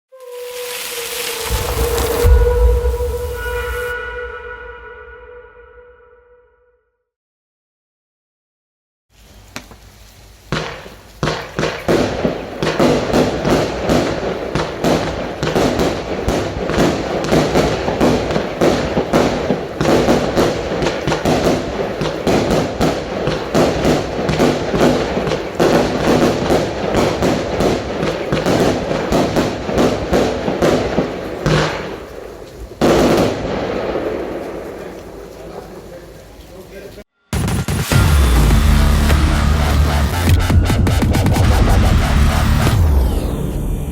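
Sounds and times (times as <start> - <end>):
firework aerial bursts: 0.1 - 5.2, 9.2 - 36.4
firework launch thumps: 0.5 - 3.9.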